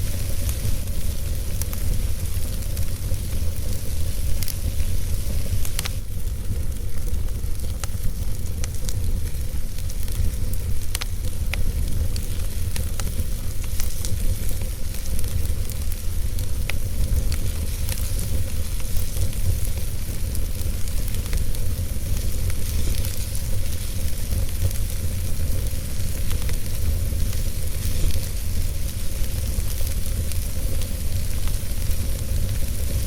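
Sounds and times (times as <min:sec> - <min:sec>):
fire crackling in fireplace: 0:00.0 - 0:33.0.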